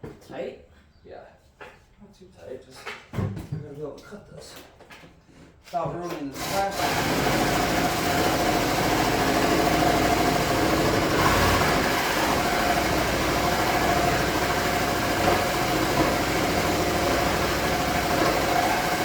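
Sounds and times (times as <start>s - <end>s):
reciprocating saw cutting metal: 6.4s - 19.0s.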